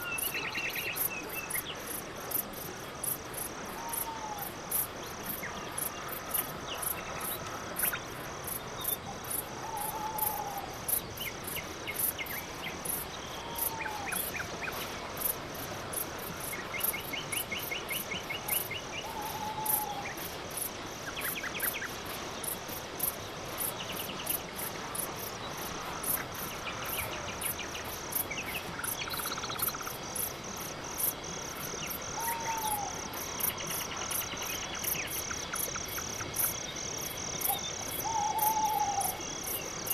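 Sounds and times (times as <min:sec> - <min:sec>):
crickets chirping: 0:00.0 - 0:39.9
insects buzzing: 0:00.0 - 0:39.9
rattling insect trills: 0:15.1 - 0:39.9.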